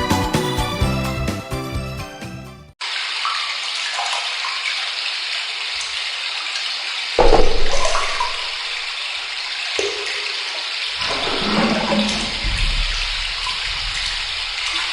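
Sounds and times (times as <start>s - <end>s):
background music: 0.0s - 2.7s
running water pouring: 2.8s - 14.9s.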